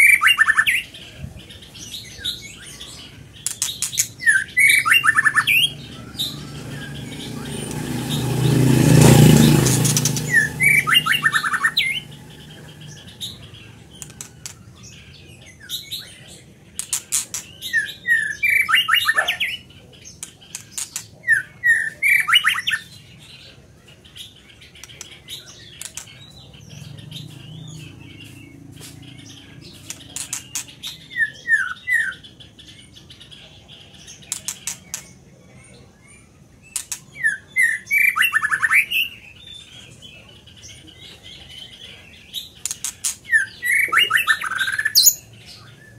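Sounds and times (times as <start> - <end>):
bird singing: 0.0 - 45.9
broad rushing noise: 5.2 - 14.6.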